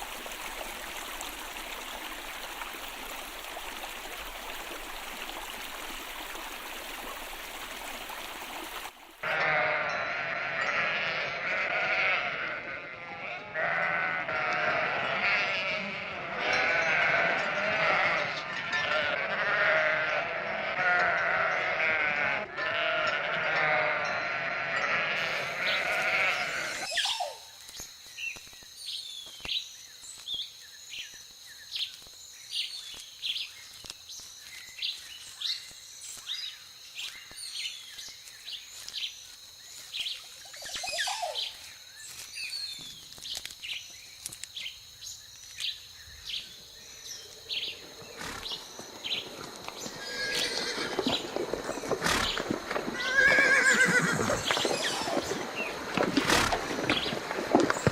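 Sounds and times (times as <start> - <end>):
sheep bleating: 9.2 - 26.9.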